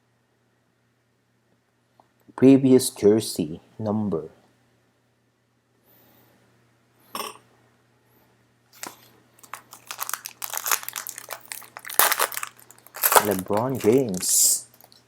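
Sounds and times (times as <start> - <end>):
plastic packaging crinkling: 8.8 - 15.0.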